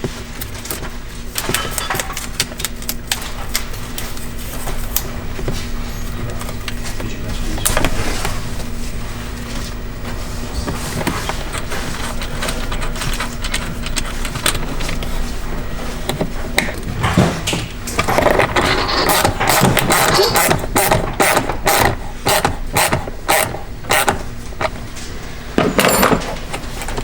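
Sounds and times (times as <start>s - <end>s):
steady low hum: 0.0s - 27.0s
metal tools clinking: 25.6s - 26.6s.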